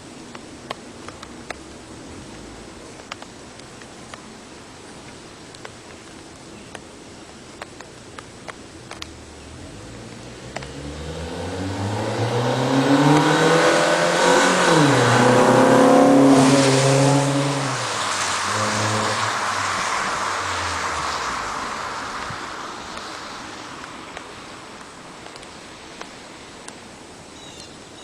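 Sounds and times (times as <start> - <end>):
car engine accelerating: 9.2 - 22.2.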